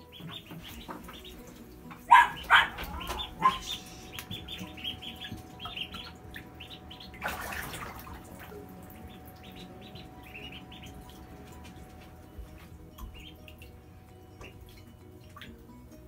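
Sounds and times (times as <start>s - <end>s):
ducklings peeping: 0.0s - 15.5s
puppy bark: 2.1s - 3.8s.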